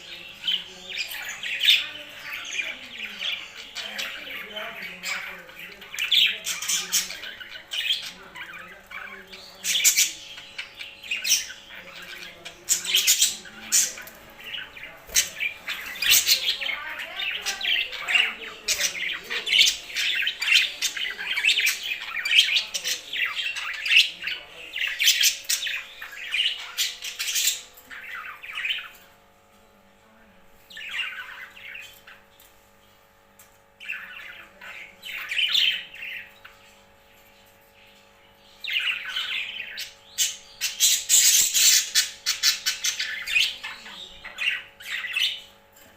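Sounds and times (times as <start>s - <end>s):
pet birds chirping and squawking: 0.0s - 45.9s.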